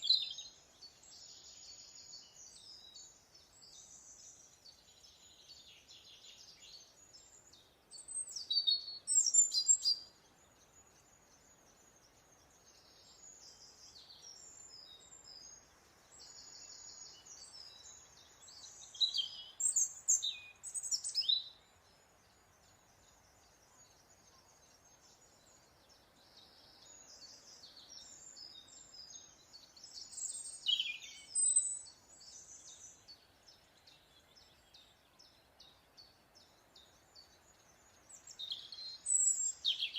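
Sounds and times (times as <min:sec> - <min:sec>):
birdsong with falling whistles: 0:00.0 - 0:21.6, 0:22.6 - 0:39.9
small birds chittering and trilling: 0:00.0 - 0:39.9.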